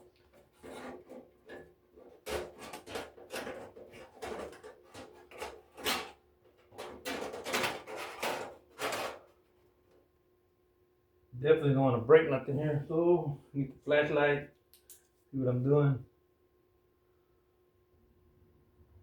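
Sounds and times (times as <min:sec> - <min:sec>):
knocks clicks and scrapes: 0:00.0 - 0:09.4.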